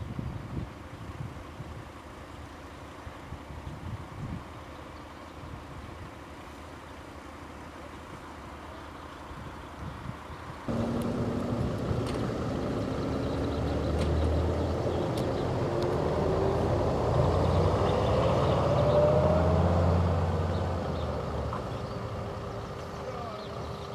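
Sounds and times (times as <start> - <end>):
vehicle engine accelerating: 10.7 - 23.9.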